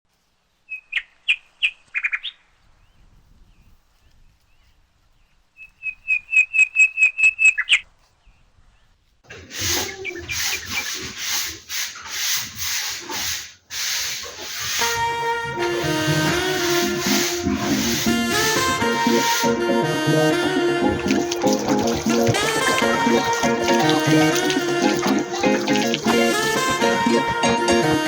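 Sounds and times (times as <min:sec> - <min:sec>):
rough rubbing strokes: 0:09.3 - 0:15.0, 0:15.7 - 0:19.6.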